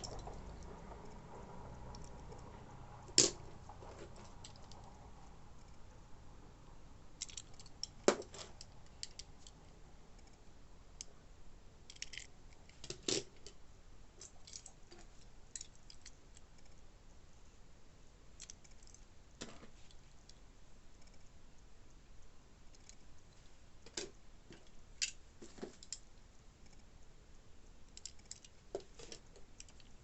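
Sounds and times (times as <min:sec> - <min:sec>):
clicks handling toy cars: 0:07.2 - 0:09.6, 0:11.9 - 0:13.6, 0:18.4 - 0:20.4, 0:27.9 - 0:30.0.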